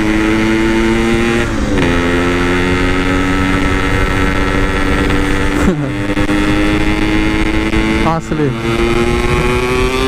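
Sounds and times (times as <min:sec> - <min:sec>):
two-stroke motorcycle engine: 0:00.0 - 0:10.0.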